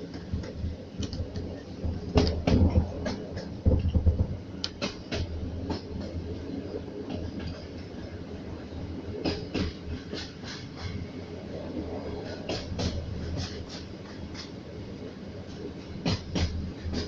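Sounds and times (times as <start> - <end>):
train wheels knocking over rail joints: 0.0 - 6.1, 16.0 - 17.0
low train rumble: 0.0 - 17.0.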